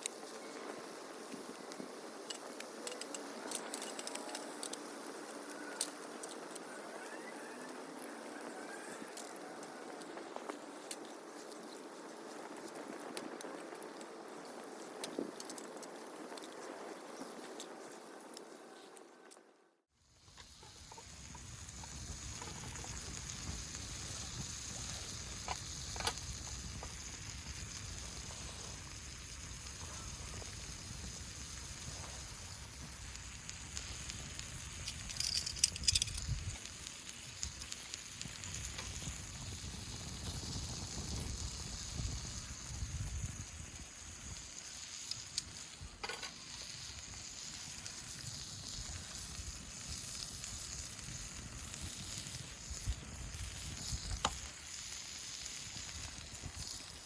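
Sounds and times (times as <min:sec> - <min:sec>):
wood fire crackling and hissing: 0:00.0 - 0:57.0
sharp pops from fire: 0:20.3 - 0:57.0.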